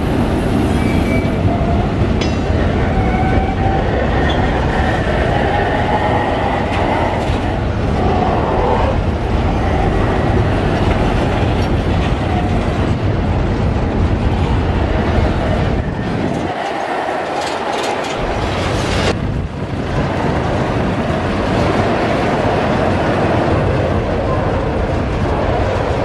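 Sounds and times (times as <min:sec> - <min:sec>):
freight train wheels rumbling: 0:00.0 - 0:26.0
wheels squealing: 0:00.6 - 0:01.9, 0:02.5 - 0:12.7.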